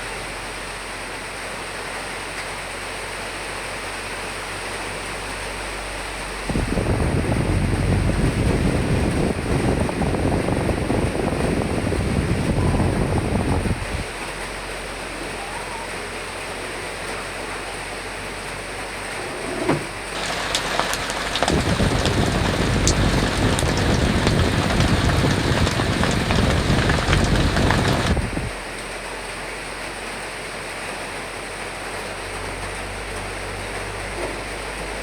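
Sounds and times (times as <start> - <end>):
steady rain: 0.0 - 35.0
drops ticking on hard surface: 20.2 - 28.5.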